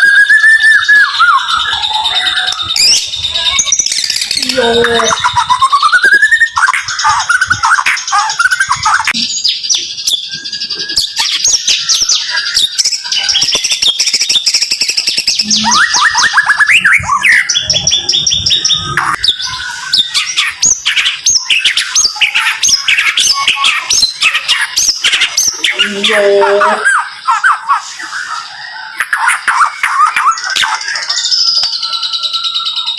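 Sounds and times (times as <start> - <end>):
bird whistled glides: 0.0 - 9.4, 15.4 - 25.9.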